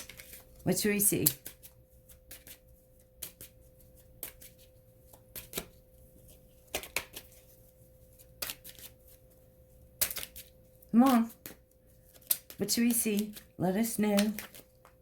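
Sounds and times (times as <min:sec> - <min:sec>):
cards being shuffled: 0:00.0 - 0:09.3, 0:10.0 - 0:15.0
faint steady hum: 0:00.0 - 0:15.0
crisp card snaps: 0:10.0 - 0:15.0.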